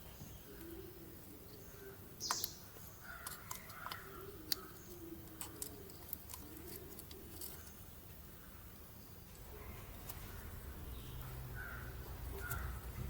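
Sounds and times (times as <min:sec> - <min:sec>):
small parts clicking and tapping: 0:03.2 - 0:07.7.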